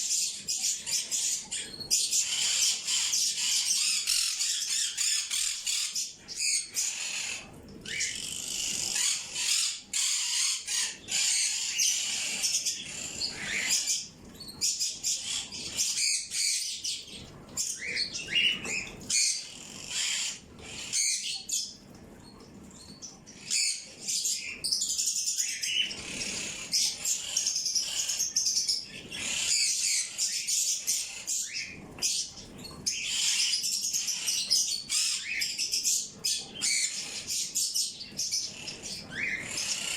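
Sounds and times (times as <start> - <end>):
flock of small birds chirping: 0.0 - 39.9.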